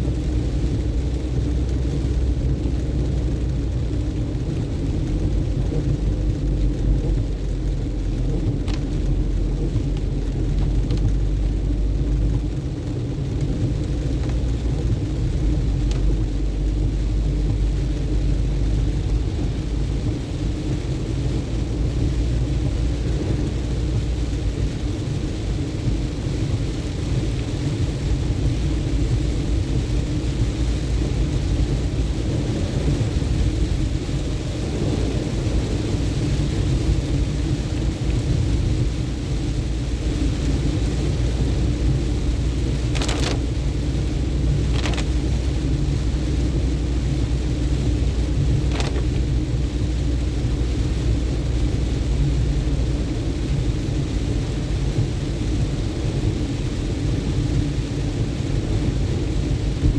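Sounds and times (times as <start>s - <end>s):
car road and engine rumble: 0.0s - 59.9s
rain and wet tyres hiss: 0.0s - 59.9s.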